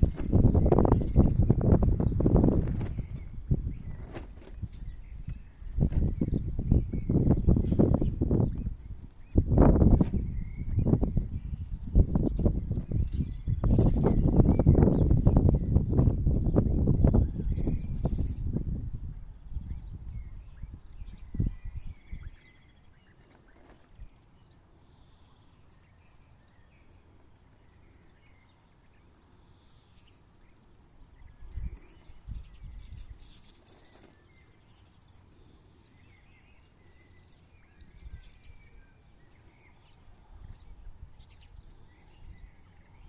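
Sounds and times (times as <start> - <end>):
rustling and scratching: 0.0 - 7.0, 23.1 - 27.9, 33.2 - 35.7.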